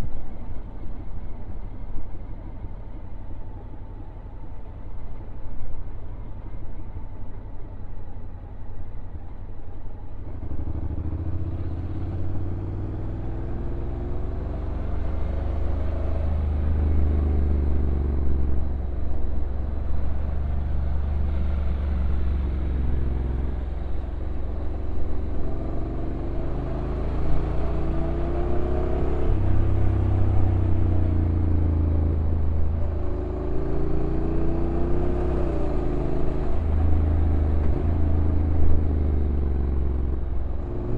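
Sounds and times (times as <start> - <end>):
road and wind noise: 0.0 - 40.9
motorcycle engine revving: 19.8 - 40.9.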